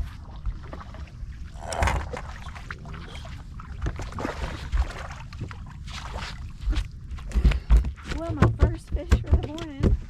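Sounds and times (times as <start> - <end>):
low rumble of wind and water: 0.0 - 10.0
handling knocks and clicks: 7.3 - 10.0.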